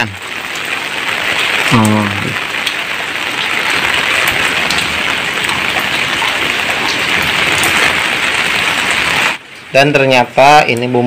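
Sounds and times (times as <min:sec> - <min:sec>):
sharp rain drop ticks: 0:00.0 - 0:11.0
steady rain falling: 0:00.0 - 0:11.0.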